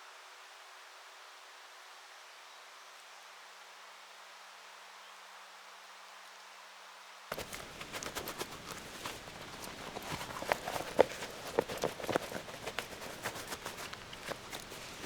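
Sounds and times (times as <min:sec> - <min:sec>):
footsteps clicking and knocking: 0:07.3 - 0:15.0.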